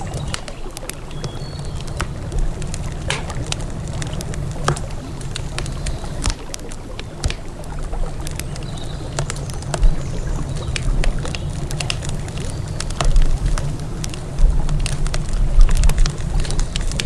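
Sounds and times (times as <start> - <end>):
campfire crackling: 0.0 - 17.0
flowing river water: 0.0 - 17.0.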